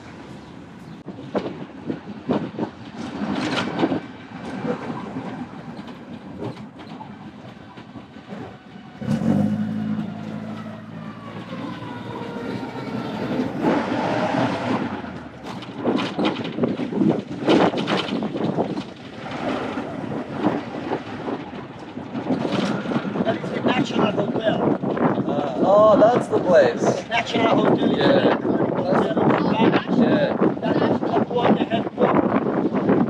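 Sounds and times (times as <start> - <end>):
road and wind noise: 0.0 - 33.0
knocks and clatter: 1.3 - 11.9, 14.5 - 23.9
deep engine drone: 9.0 - 16.0.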